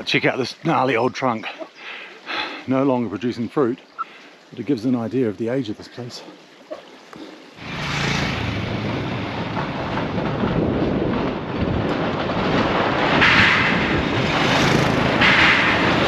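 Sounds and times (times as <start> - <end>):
motorcycle engine running: 7.6 - 11.3, 14.0 - 16.0
wind on microphone: 8.4 - 16.0.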